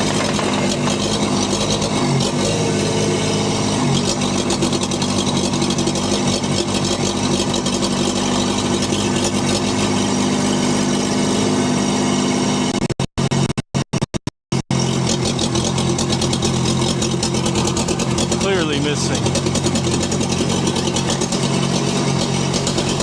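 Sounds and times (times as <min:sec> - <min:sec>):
misfiring engine running: 0:00.0 - 0:10.6, 0:14.7 - 0:23.0.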